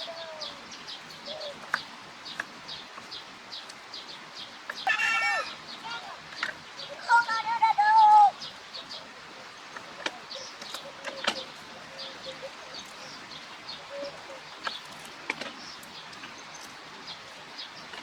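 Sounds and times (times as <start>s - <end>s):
chickens calling: 4.7s - 9.0s.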